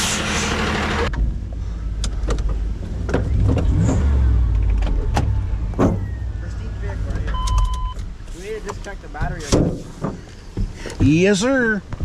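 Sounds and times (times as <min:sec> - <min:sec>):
compressed air hiss: 0:00.0 - 0:00.7
truck engine idling: 0:00.0 - 0:09.3.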